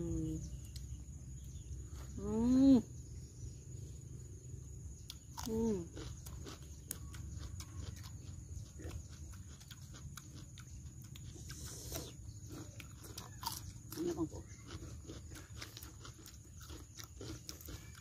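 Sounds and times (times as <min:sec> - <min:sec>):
people chewing crunchy vegetables: 0:00.1 - 0:02.2, 0:03.0 - 0:18.0.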